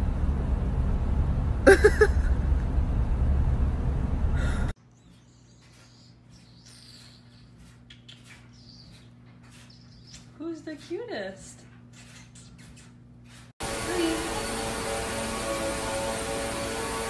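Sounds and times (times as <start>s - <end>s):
low rumbling background noise: 0.0s - 5.0s.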